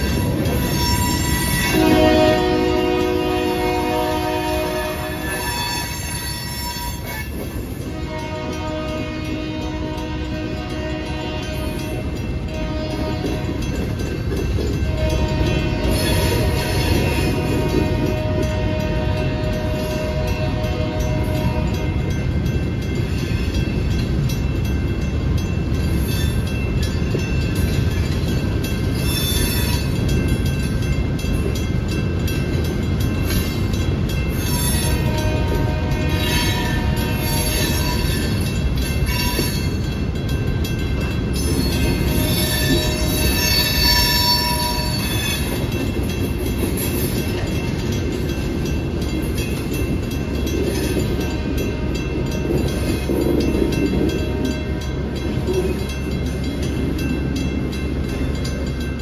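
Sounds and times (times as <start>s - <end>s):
high wheel squeal: 0.0s - 2.0s, 5.0s - 7.8s, 29.0s - 29.9s, 41.4s - 45.7s
freight train wheels rumbling on rail: 0.0s - 59.0s.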